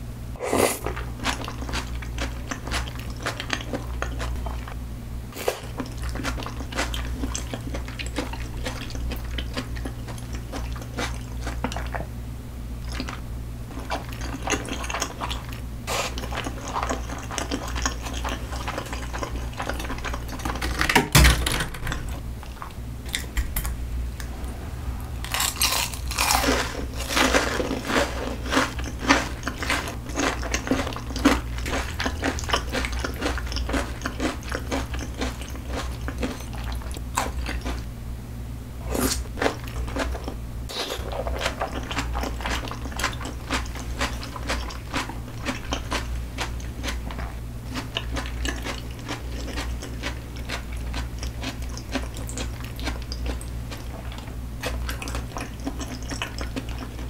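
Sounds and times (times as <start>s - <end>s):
chewing with wet mouth sounds: 0.8s - 4.8s, 5.4s - 12.1s, 12.8s - 20.6s, 24.2s - 37.9s, 38.9s - 57.0s
crisp crunches: 25.2s - 33.4s.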